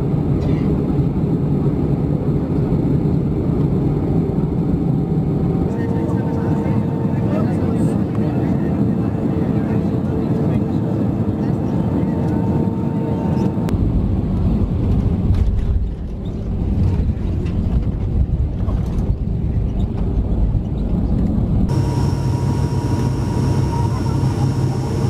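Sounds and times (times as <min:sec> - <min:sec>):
airliner engine rumble: 0:00.0 - 0:25.0
thin high whine: 0:21.7 - 0:25.0.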